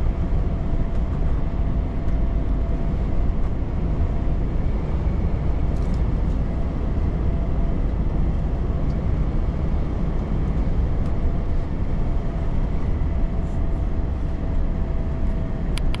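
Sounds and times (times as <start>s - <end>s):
road noise: 0.0s - 16.0s
truck engine rumble: 0.0s - 16.0s.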